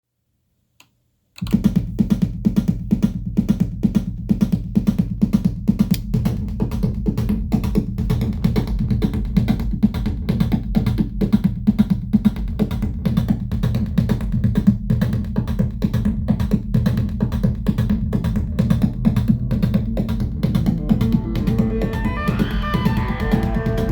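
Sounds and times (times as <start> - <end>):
fast percussive synth rhythm: 1.4 - 23.9
low synth bass melody: 19.4 - 23.9.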